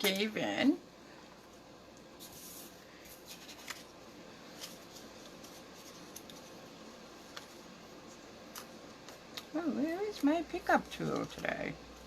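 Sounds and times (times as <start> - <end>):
paper rustling: 2.2 - 6.7.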